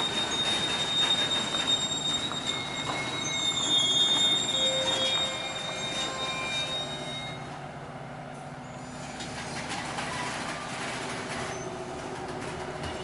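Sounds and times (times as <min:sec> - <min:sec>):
wheels clicking over rail joints: 0:00.0 - 0:05.6, 0:08.3 - 0:13.0
train wheel squeal: 0:00.0 - 0:07.6, 0:08.6 - 0:13.0
train cars rumbling: 0:00.0 - 0:13.0.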